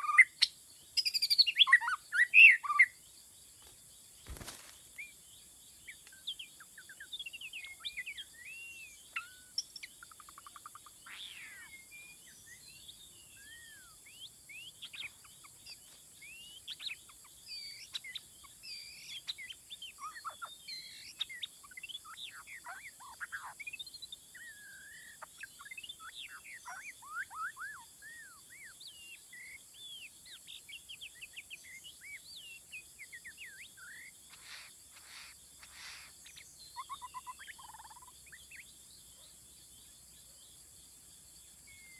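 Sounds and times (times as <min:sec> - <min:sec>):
birds chirping and singing: 0:00.0 - 0:41.9
faint high hiss: 0:02.5 - 0:20.0.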